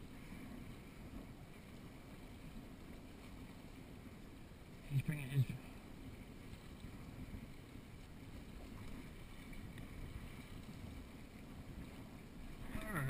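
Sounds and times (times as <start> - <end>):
water rushing past boat: 0.0 - 13.0.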